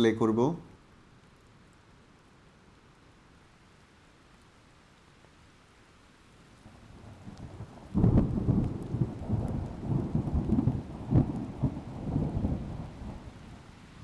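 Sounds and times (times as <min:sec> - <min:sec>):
thunder rumbling: 0:06.9 - 0:13.7.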